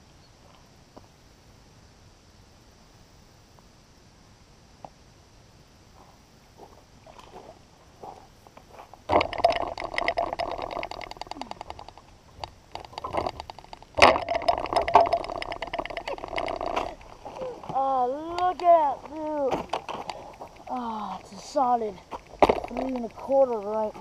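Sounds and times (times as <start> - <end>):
fishing reel clicking whirr: 9.1 - 17.1.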